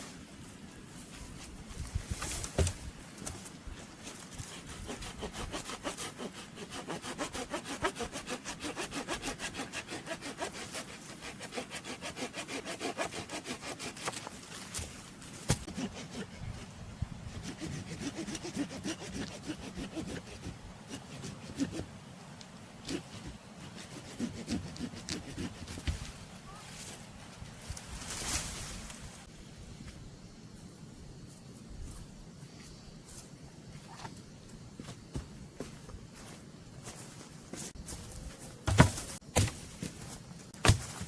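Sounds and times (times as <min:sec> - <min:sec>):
hand saw cutting wood: 0:04.3 - 0:14.9, 0:15.5 - 0:16.7, 0:17.3 - 0:21.9, 0:22.8 - 0:26.1, 0:38.7 - 0:39.6, 0:40.6 - 0:41.0.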